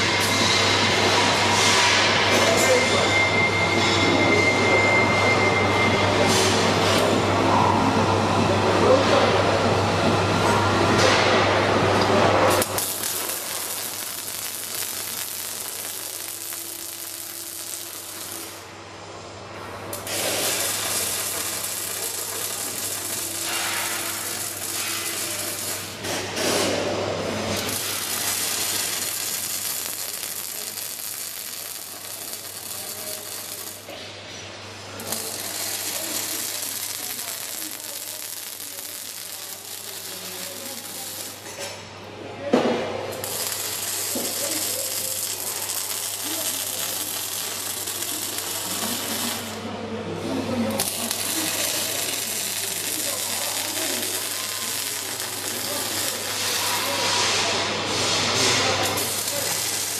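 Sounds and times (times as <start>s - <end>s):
welding arc crackling and hissing: 0.0s - 3.0s, 12.2s - 18.9s, 19.9s - 34.0s, 34.8s - 41.6s, 43.1s - 49.7s, 50.6s - 59.9s.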